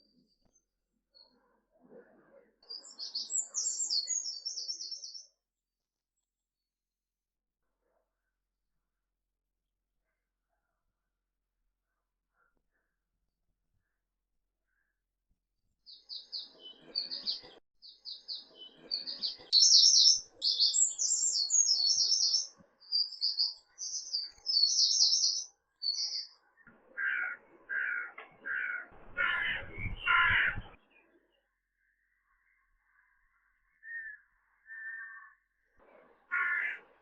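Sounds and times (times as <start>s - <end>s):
small birds chirping in trills: 2.6s - 5.4s, 15.8s - 37.0s
harsh bird call: 27.0s - 30.8s, 33.8s - 35.5s, 36.3s - 36.9s.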